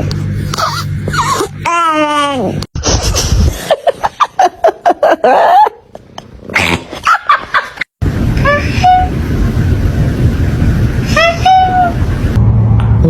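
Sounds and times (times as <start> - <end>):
pet animal crying: 0.6 - 1.6.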